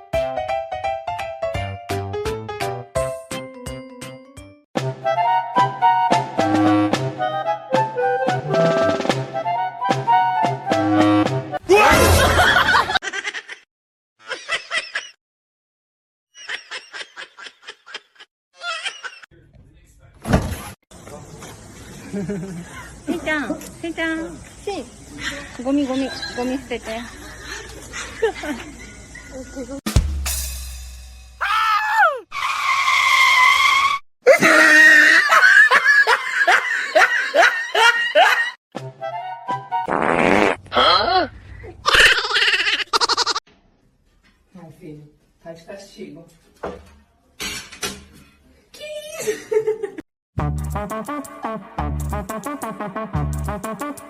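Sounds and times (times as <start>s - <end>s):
music: 0.0s - 11.6s, 29.9s - 31.4s, 38.8s - 40.0s, 50.4s - 54.0s.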